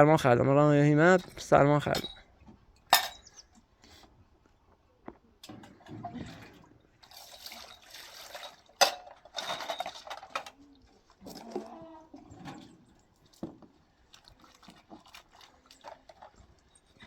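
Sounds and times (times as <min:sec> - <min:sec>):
water pouring and splashing: 0:05.4 - 0:17.0.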